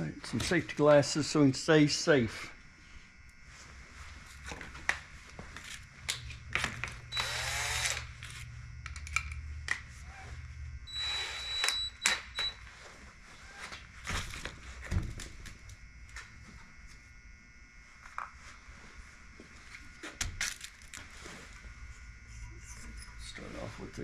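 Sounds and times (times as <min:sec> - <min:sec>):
cordless drill running: 0:07.0 - 0:09.0, 0:10.8 - 0:12.6.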